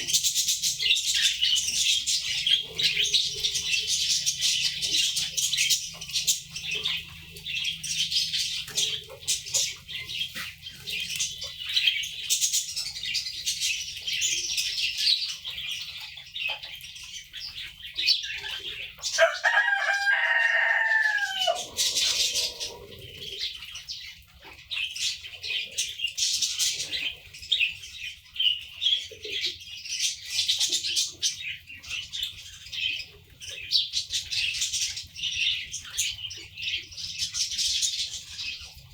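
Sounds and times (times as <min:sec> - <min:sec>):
cage birds chirping: 0:00.0 - 0:38.9
rooster crowing: 0:19.2 - 0:23.0.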